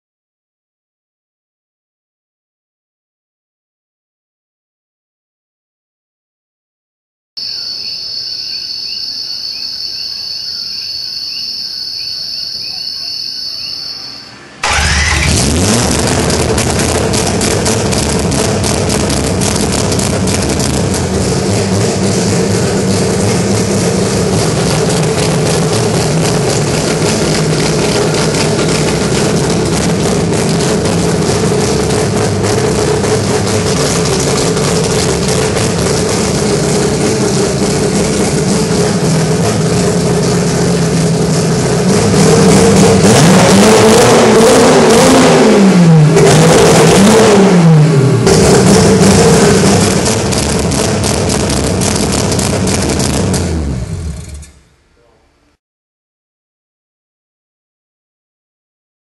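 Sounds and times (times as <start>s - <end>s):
insects buzzing and chirping: 7.4s - 14.3s
rotary engine starting and revving: 13.9s - 54.7s.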